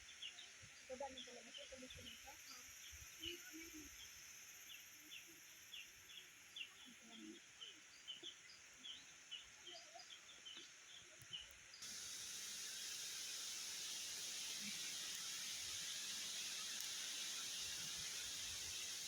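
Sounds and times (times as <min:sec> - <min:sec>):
small birds chirping: 0:00.0 - 0:19.0
steady high-pitched hiss: 0:00.0 - 0:19.0
loud even hiss: 0:11.8 - 0:19.0.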